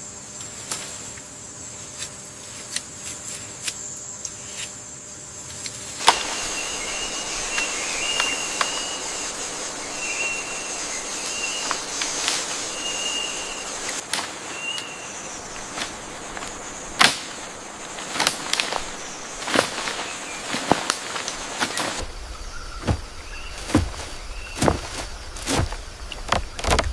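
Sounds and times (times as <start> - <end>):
high insect buzz: 0.0 - 26.9
high whistle-like calls: 6.0 - 24.7.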